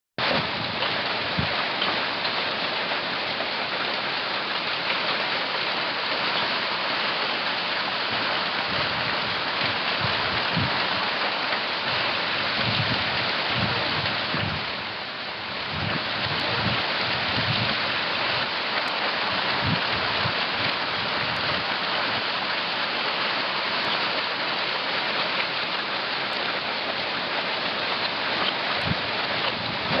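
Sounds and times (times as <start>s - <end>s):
hail and rain striking surfaces: 0.2s - 30.0s.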